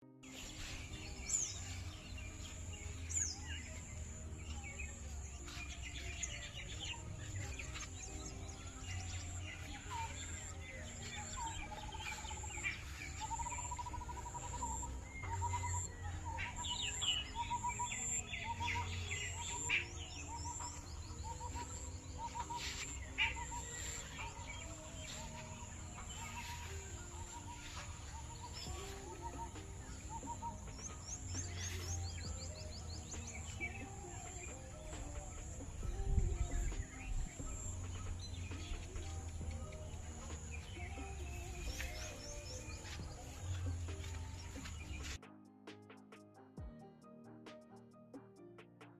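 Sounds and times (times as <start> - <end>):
birds chirping: 0.0 - 45.2
soft held musical chords: 0.0 - 48.9
low rapid bird trill: 0.2 - 45.2.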